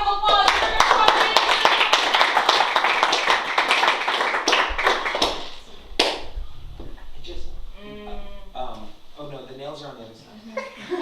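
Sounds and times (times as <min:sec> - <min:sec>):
audience applauding: 0:00.2 - 0:06.3.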